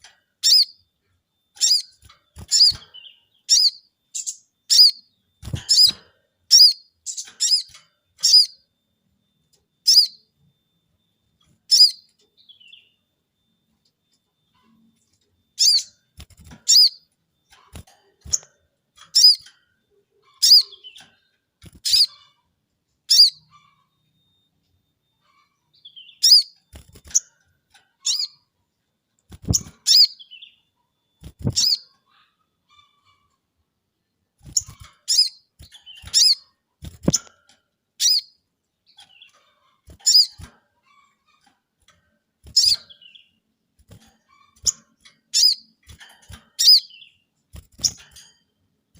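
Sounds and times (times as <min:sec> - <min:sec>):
bird calling with high notes: 0:00.0 - 0:13.5, 0:14.3 - 0:27.4, 0:28.0 - 0:28.5, 0:29.3 - 0:33.4, 0:34.4 - 0:37.4, 0:38.0 - 0:41.5, 0:42.4 - 0:43.5, 0:44.2 - 0:45.9, 0:46.5 - 0:48.0.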